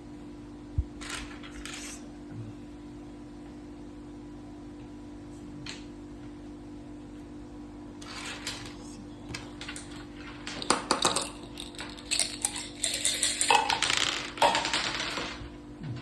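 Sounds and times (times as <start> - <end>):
dice and game pieces clattering: 1.0 - 2.0, 8.0 - 15.5.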